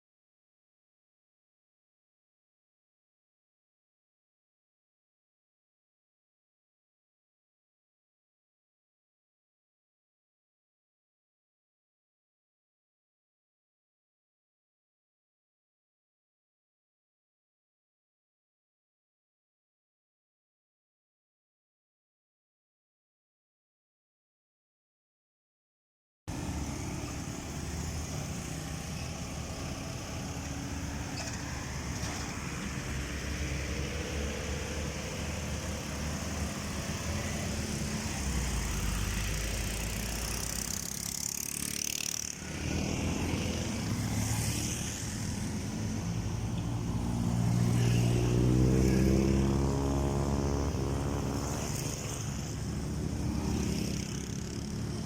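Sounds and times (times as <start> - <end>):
vehicles passing: 26.3 - 55.0.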